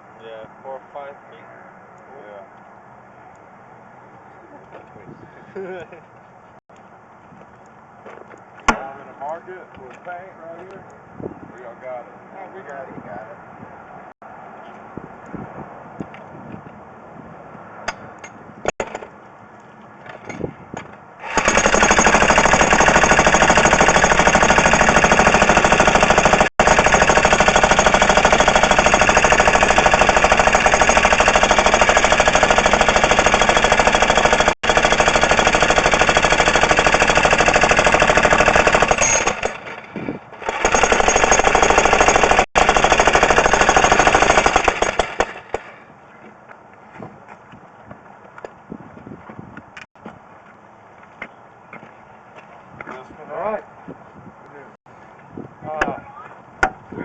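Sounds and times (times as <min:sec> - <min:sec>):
jackhammer hammering: 0:21.2 - 0:39.8, 0:40.4 - 0:45.8.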